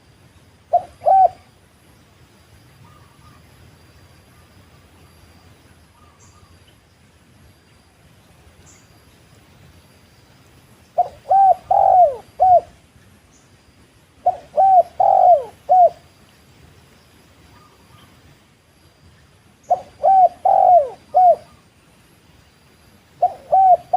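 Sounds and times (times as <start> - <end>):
dove cooing: 0.7 - 1.5, 11.0 - 12.8, 14.2 - 16.0, 19.7 - 21.6, 23.2 - 23.9.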